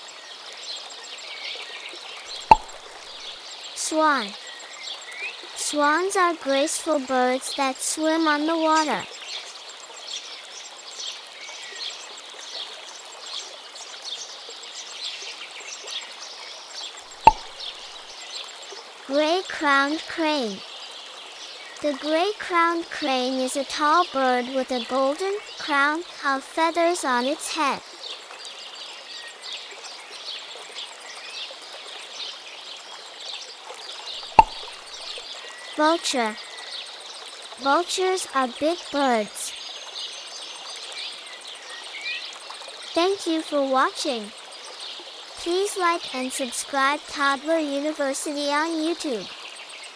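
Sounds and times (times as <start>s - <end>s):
steady outdoor hiss: 0.0s - 49.9s
small birds chirping: 1.0s - 6.8s, 7.4s - 49.9s
running water hissing: 2.2s - 4.4s, 16.7s - 20.4s, 33.9s - 36.2s
sharp click: 2.5s - 3.2s, 17.2s - 18.1s, 34.4s - 34.8s.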